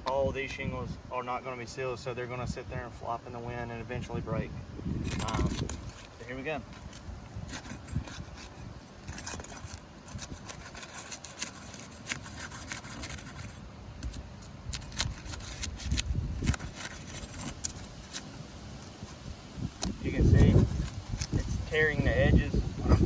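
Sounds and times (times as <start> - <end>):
shingles tearing: 5.1 - 22.0
metal bar scraping shingles: 5.2 - 19.2.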